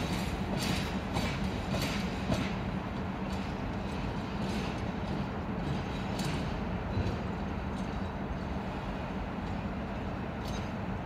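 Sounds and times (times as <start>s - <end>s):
diesel train rumbling: 0.0s - 11.0s
wheels clicking over rails: 0.0s - 11.0s.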